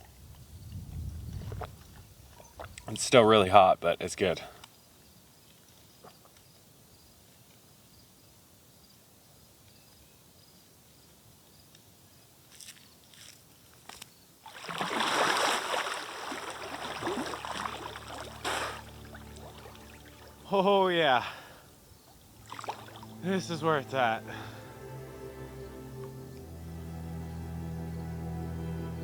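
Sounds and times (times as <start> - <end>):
rushing slosh of water: 14.4 - 20.4, 22.3 - 24.5.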